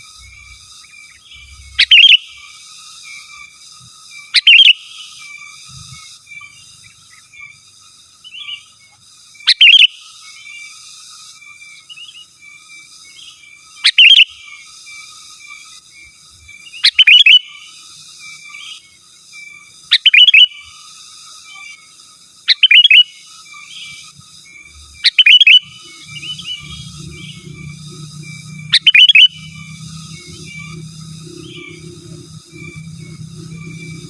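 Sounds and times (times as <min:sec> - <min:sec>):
bird calling loudly: 0:01.3 - 0:02.3, 0:16.8 - 0:17.4, 0:20.0 - 0:20.5, 0:22.5 - 0:23.1, 0:25.0 - 0:34.0.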